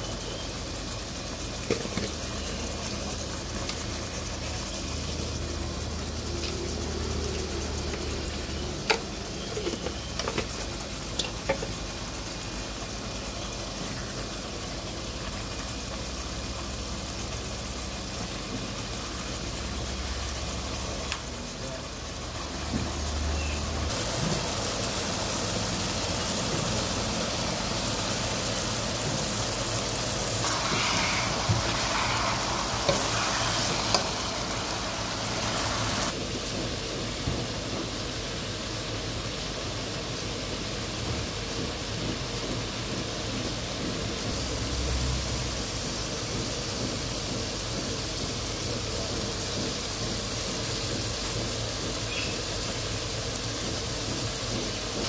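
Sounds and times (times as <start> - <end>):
meat sizzling in a wok: 0.0 - 55.0.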